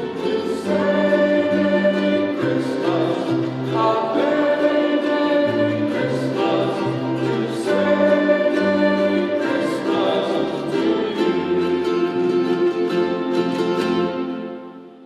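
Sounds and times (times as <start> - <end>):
choir singing sustained chords: 0.0 - 15.0
orchestral accompaniment: 0.0 - 15.0.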